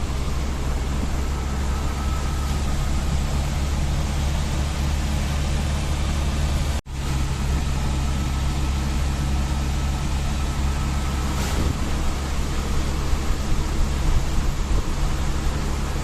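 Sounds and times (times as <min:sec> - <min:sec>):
road noise: 0:00.0 - 0:16.0
vehicle engine hum: 0:00.0 - 0:16.0
hiss: 0:11.1 - 0:15.4.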